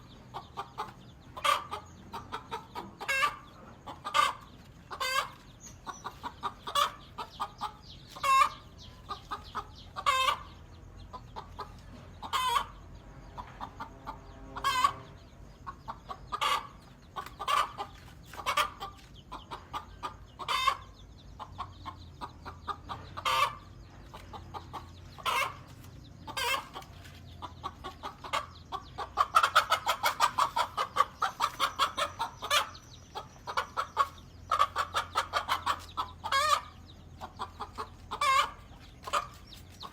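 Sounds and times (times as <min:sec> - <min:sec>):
hen clucking: 0:00.0 - 0:39.9.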